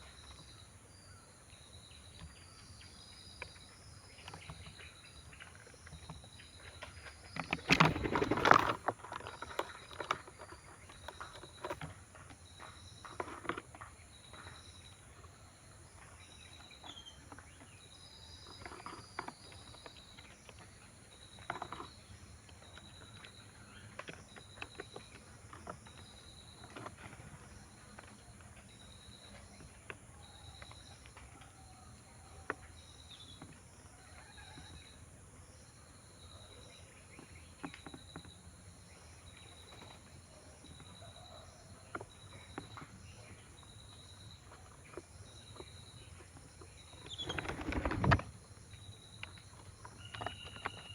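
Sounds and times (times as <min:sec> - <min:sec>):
birds pecking at food: 0:03.3 - 0:34.8, 0:36.5 - 0:50.9
loud clattering rustle: 0:07.3 - 0:10.8, 0:47.0 - 0:48.5.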